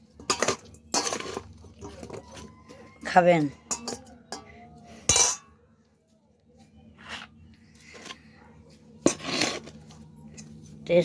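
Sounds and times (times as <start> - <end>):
cutlery clinking on a dish: 0.2 - 2.5, 3.6 - 5.5.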